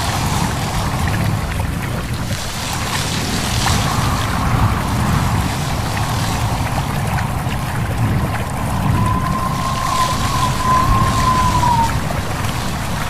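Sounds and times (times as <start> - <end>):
wind rumble: 0.0 - 13.0
leaves rustling: 2.4 - 13.0
stream babbling: 3.8 - 13.0.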